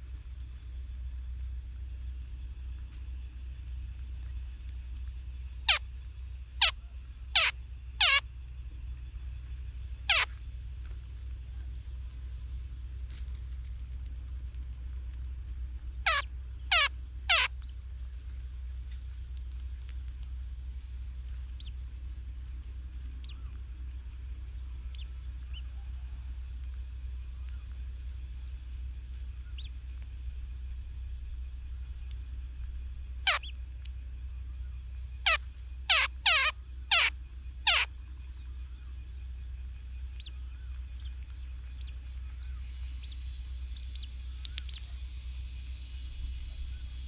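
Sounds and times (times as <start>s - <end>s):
low rumble: 0.0s - 47.0s
bird chirping: 6.6s - 8.2s, 10.0s - 10.4s, 16.0s - 17.8s, 21.5s - 21.8s, 22.6s - 26.1s, 28.8s - 30.1s, 33.2s - 33.7s, 34.6s - 47.0s.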